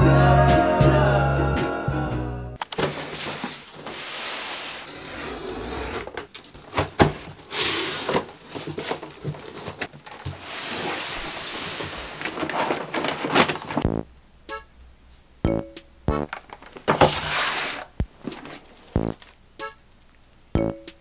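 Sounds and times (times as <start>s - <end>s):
plastic packaging rustling: 2.7s - 4.8s, 6.0s - 13.8s, 16.3s - 19.4s.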